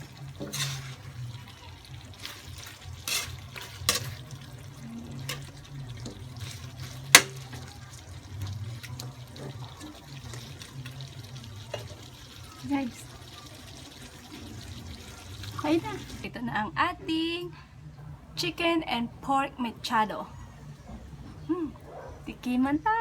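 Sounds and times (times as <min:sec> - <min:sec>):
utensil clinking against pot: 0:00.0 - 0:01.4, 0:02.1 - 0:07.8
stew bubbling in a pot: 0:00.0 - 0:16.3.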